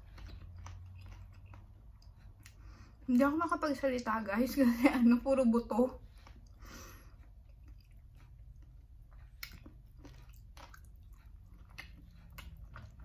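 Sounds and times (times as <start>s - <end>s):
person chewing: 0.0s - 3.1s, 6.0s - 13.0s
low steady hum: 0.0s - 13.0s.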